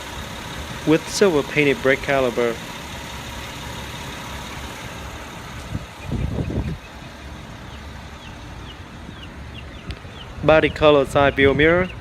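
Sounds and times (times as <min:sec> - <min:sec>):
low vehicle engine rumble: 0:00.0 - 0:12.0.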